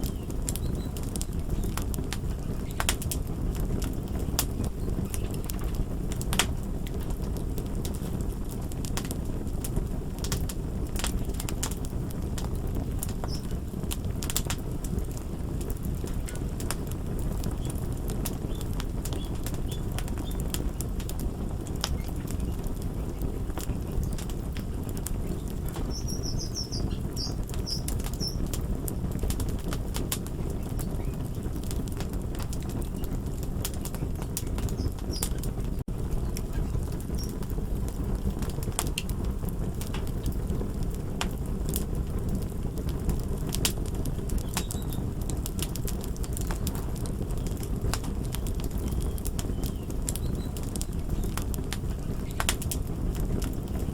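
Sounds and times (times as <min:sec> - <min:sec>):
wood fire crackling: 0:00.0 - 0:53.9
faint high chirps: 0:25.8 - 0:28.4.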